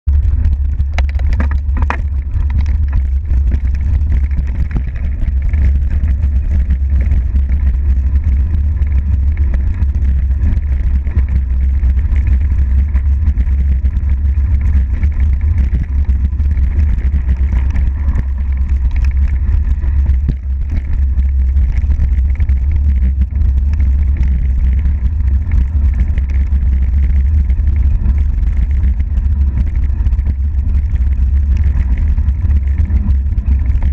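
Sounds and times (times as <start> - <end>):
wind rumble on microphone: 0.0 - 33.9
bike chatter: 0.4 - 23.2.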